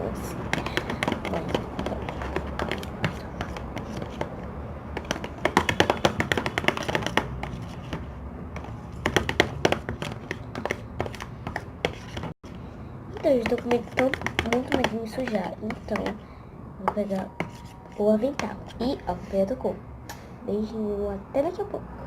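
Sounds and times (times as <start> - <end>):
hands tapping and clicking on table: 0.5 - 12.3, 13.2 - 16.2.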